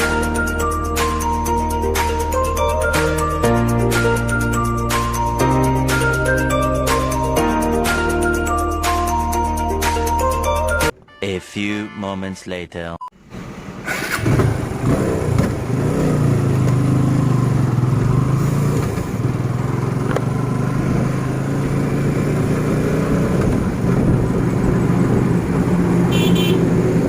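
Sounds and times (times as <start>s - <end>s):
motorcycle engine running: 14.2s - 27.0s.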